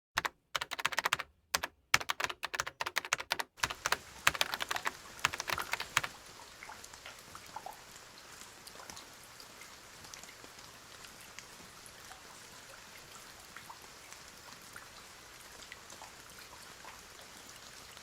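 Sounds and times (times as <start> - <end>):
quick runs of sharp clicks: 0.1 - 6.2
soft steady rain hiss: 0.5 - 18.0.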